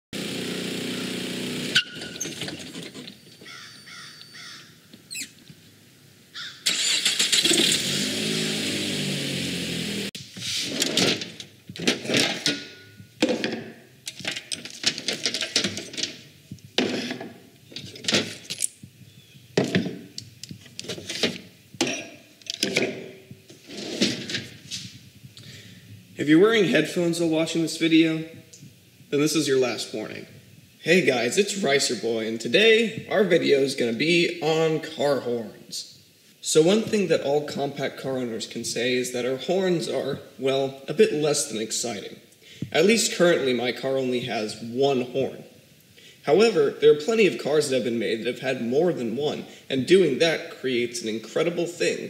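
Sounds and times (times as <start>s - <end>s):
car engine revving: 6.8s - 10.2s.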